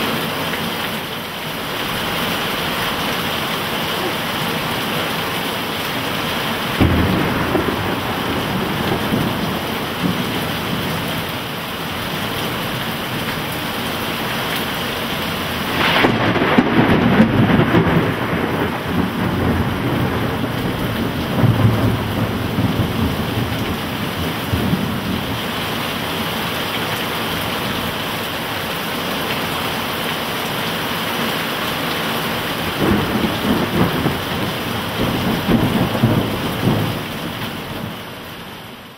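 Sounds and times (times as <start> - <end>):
heavy rain pouring: 0.0 - 38.9
thunder rumbling: 3.8 - 26.4, 32.4 - 38.2.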